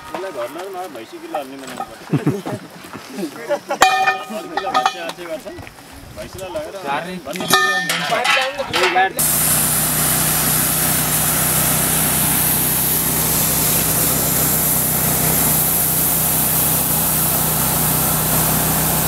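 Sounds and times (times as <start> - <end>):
hiss: 9.2 - 19.0
machine engine humming: 9.2 - 19.0.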